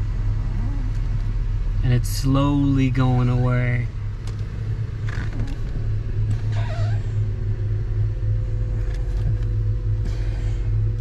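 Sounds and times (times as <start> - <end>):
car engine idling: 0.0 - 11.0
brake pedal squeak: 5.0 - 7.3.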